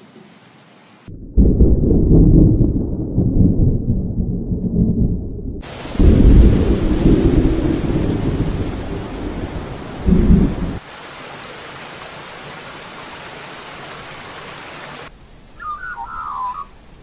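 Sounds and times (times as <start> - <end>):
thunder rumbling: 1.1 - 10.8
rain hissing: 5.6 - 17.0.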